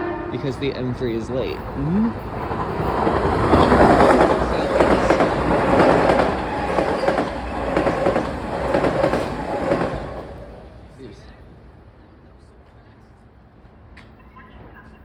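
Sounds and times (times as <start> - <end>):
train wheels clacking over rails: 0.4 - 10.9.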